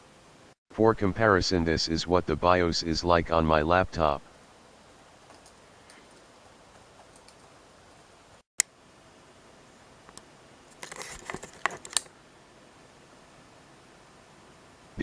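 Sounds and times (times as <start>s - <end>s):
clicking and light rattling: 5.3s - 7.6s.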